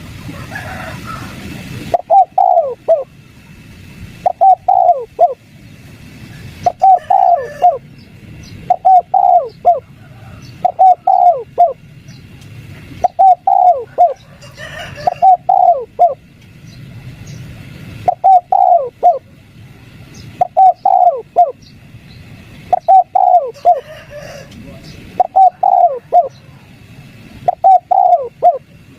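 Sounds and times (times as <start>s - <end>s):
dove cooing: 0.4s - 3.1s, 4.2s - 5.4s, 6.5s - 7.9s, 8.6s - 11.8s, 12.8s - 16.2s, 18.0s - 19.3s, 20.4s - 21.6s, 22.6s - 26.8s, 27.4s - 28.9s.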